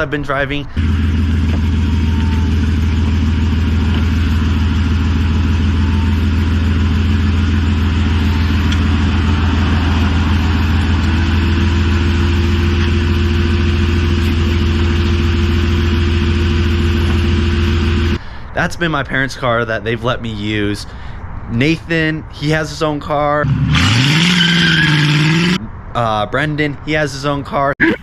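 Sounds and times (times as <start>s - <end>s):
car engine and road drone: 0.0s - 28.0s
higher steady hum: 0.8s - 18.2s.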